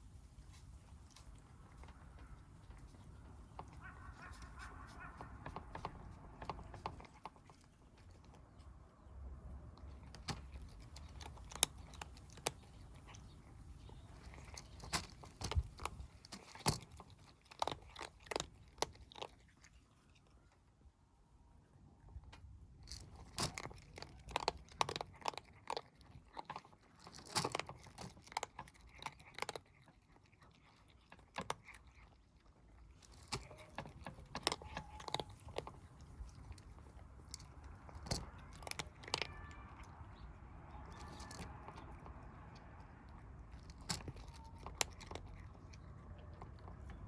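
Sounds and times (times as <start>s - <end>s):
kittens crunching dry food: 0.0s - 47.0s
low steady rumble: 32.2s - 47.0s.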